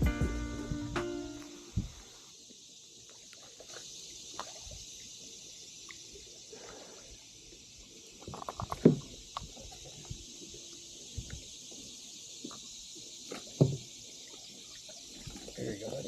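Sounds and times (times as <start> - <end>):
steady high hiss: 0.0 - 3.2.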